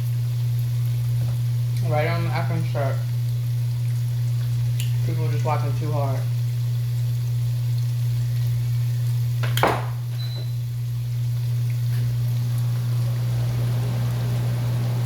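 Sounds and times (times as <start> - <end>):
batter sizzling in a pan: 0.0 - 15.0
steady low hum: 10.1 - 15.0.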